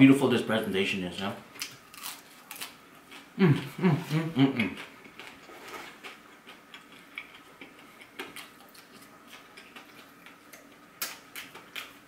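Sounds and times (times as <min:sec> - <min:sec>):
mouth chewing with wet smacks: 0:06.0 - 0:12.0.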